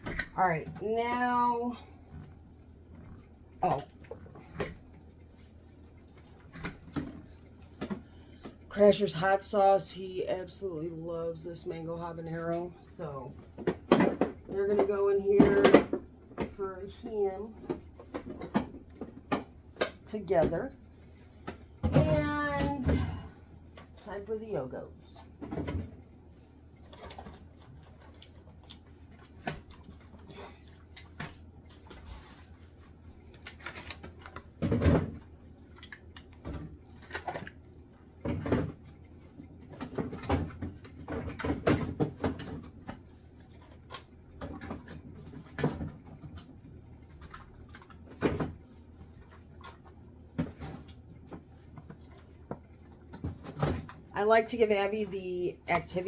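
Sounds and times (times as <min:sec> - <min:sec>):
containers clattering on shelves: 0:13.6 - 0:16.6.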